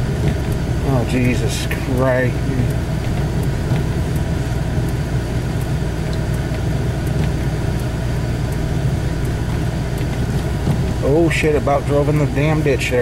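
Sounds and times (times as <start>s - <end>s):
vehicle engine and tyres droning: 0.0s - 13.0s
faint ticks: 2.6s - 11.0s.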